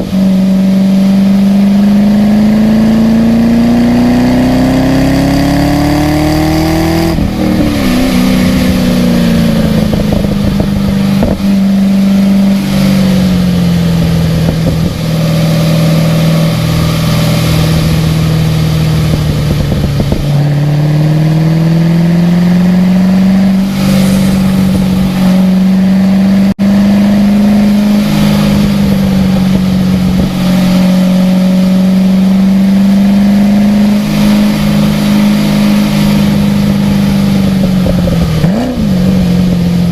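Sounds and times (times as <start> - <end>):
car engine running hard: 0.0 - 39.9
rain and tyre spray hiss: 23.6 - 25.8, 27.7 - 31.2, 33.8 - 38.4.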